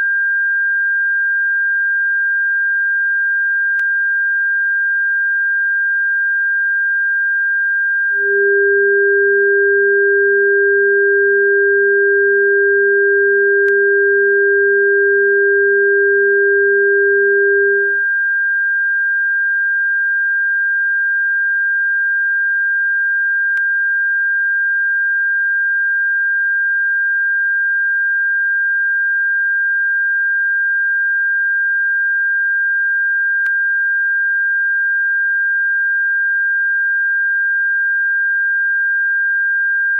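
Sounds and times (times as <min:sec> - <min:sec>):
lower steady tone: 0:07.4 - 0:18.6
high-pitched pure tone: 0:08.2 - 0:18.0.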